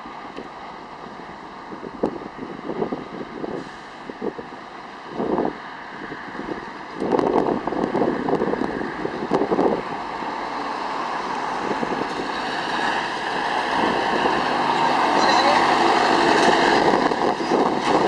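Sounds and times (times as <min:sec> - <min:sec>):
wind buffeting microphone: 0:01.6 - 0:18.0
diesel truck engine running: 0:07.6 - 0:18.0.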